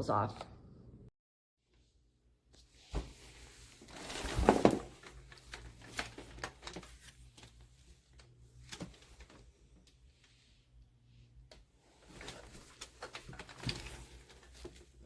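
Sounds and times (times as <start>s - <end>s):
scraping and rustling: 2.8s - 7.8s, 11.8s - 15.0s.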